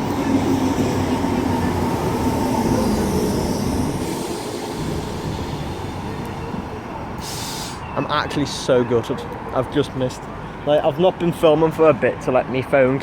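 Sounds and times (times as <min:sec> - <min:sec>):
electric train running: 0:00.0 - 0:07.1.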